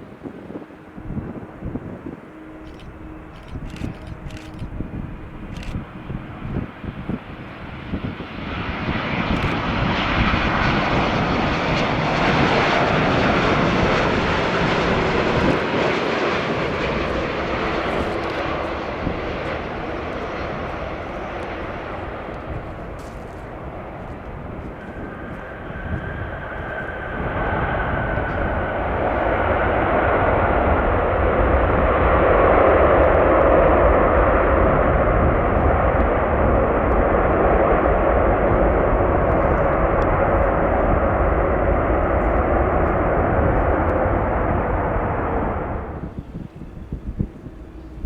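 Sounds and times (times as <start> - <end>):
jet engines roaring: 0.0 - 48.0.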